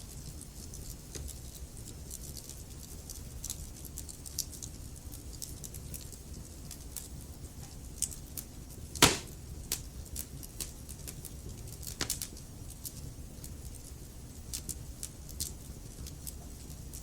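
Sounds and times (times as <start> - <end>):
loud fire pop: 9.0 - 9.4.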